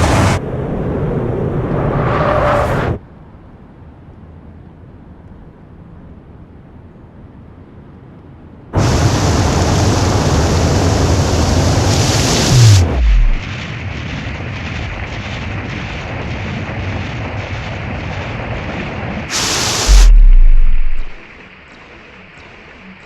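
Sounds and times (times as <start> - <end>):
whoosh: 12.2 - 13.6, 19.3 - 21.3
deep boom: 12.5 - 13.6, 19.4 - 21.2
steady hiss: 14.4 - 23.0.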